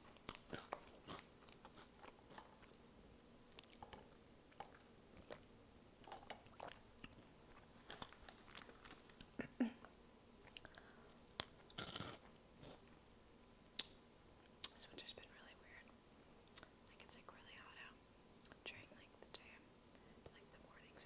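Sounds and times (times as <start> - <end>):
person chewing: 0.1 - 9.4, 10.4 - 12.9.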